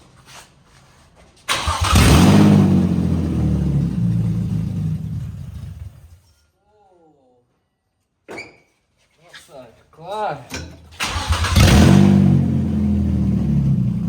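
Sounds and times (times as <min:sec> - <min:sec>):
car engine starting and revving: 0:01.5 - 0:06.1, 0:11.0 - 0:14.0.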